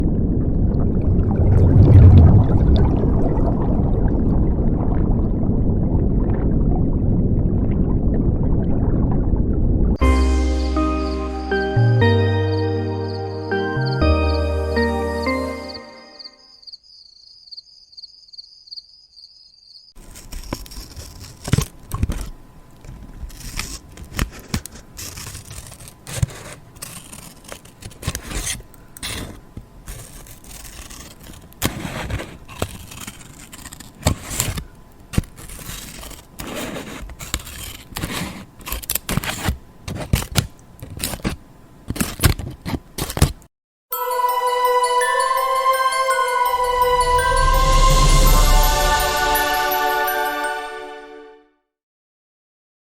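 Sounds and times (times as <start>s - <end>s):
faint wavering high tone: 10.0s - 16.6s, 43.9s - 51.5s
scraping and crackling with clicks: 20.0s - 43.5s.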